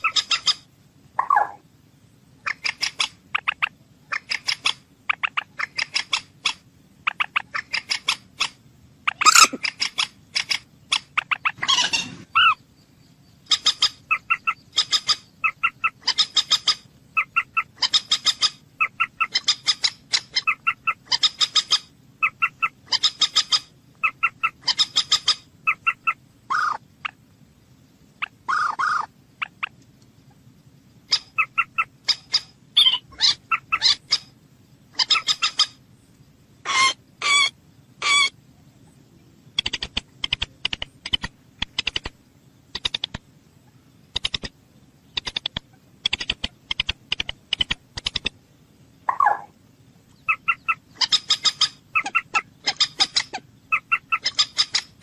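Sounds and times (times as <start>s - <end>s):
moorhen clucking: 0.0s - 1.7s, 2.4s - 12.8s, 13.4s - 27.3s, 28.2s - 35.8s, 36.6s - 38.4s, 39.2s - 48.4s, 49.0s - 55.0s.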